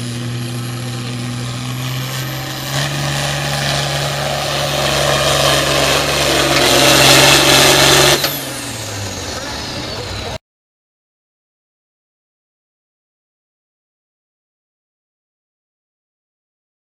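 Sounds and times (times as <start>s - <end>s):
diesel tractor engine under load: 0.0s - 10.4s.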